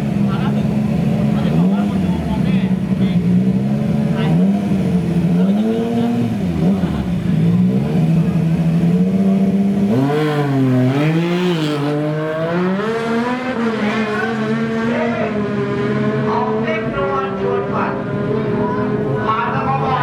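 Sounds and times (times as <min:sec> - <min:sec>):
motorcycle engines revving: 0:00.0 - 0:20.0.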